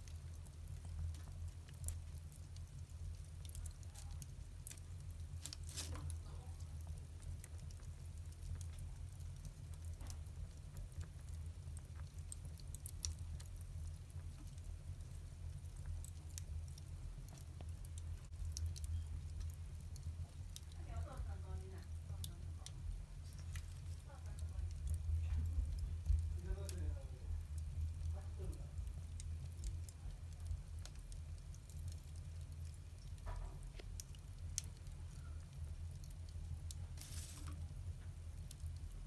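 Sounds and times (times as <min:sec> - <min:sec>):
fire low rumble: 0:00.0 - 0:39.0
wood fire crackling and popping: 0:00.0 - 0:39.0.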